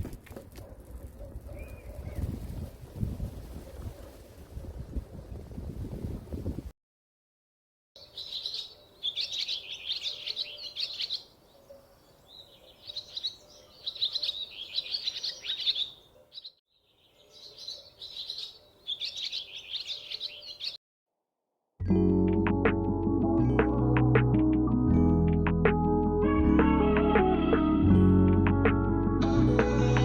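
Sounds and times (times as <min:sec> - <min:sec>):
small birds twittering: 0:08.0 - 0:20.8.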